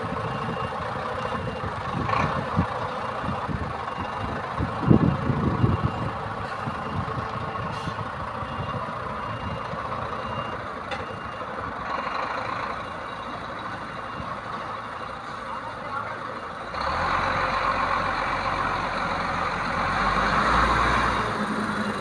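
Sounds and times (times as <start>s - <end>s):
reversing alarm beeping: 3.9s - 16.7s.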